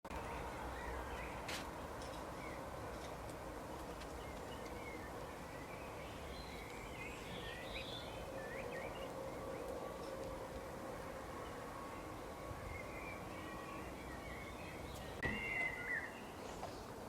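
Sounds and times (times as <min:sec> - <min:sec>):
birds chirping: 0:03.7 - 0:17.0.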